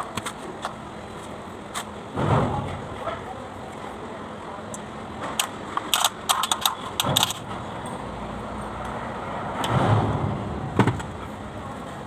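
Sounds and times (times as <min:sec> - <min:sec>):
metal clicks and clinks: 0:05.4 - 0:07.5.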